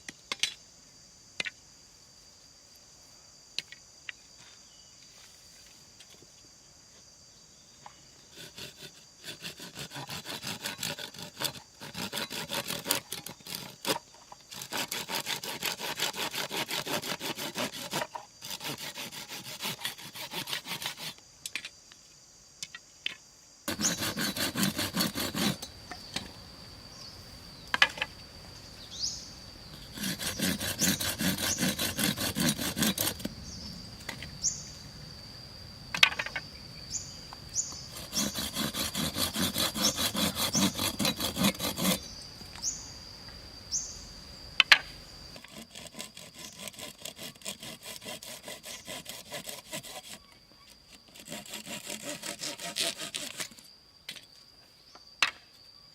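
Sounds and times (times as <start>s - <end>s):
insect buzzing: 0.0s - 55.9s
saw cutting wood: 8.3s - 21.2s, 23.7s - 25.7s, 29.7s - 33.3s, 37.9s - 42.1s, 45.4s - 50.3s, 50.9s - 53.6s.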